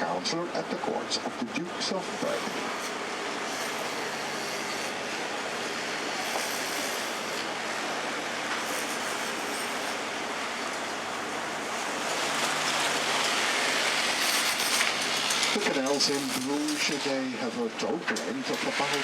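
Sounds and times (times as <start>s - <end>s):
rushing water: 10.0s - 16.6s.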